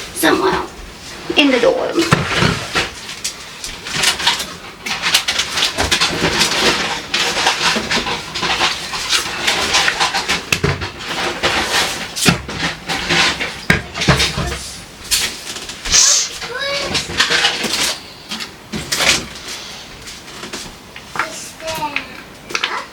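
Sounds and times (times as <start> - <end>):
food containers clicking and knocking: 2.0 - 15.8, 16.4 - 19.4.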